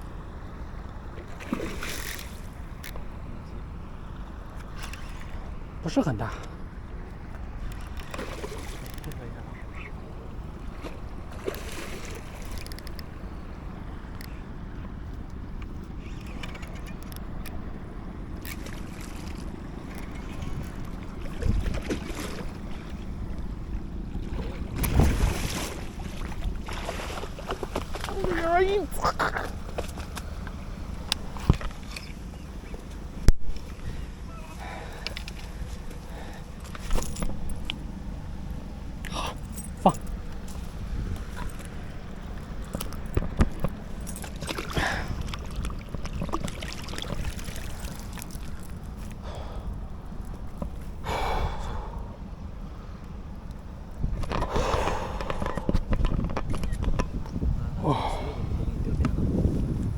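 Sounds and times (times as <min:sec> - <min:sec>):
steady low rumble: 0:00.0 - 0:59.9
water splashing around boat: 0:00.0 - 0:59.9
wind buffeting microphone: 0:02.4 - 0:34.9, 0:40.0 - 0:59.9.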